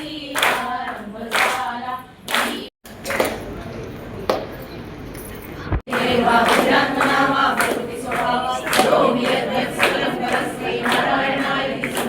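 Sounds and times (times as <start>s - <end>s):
group of voices singing: 0.0s - 2.7s, 5.9s - 12.0s.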